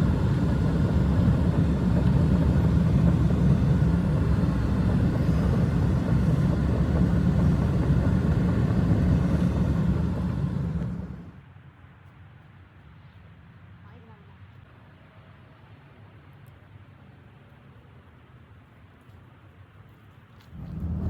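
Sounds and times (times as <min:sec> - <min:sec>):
strong blizzard wind: 0:00.0 - 0:11.4, 0:20.6 - 0:21.0.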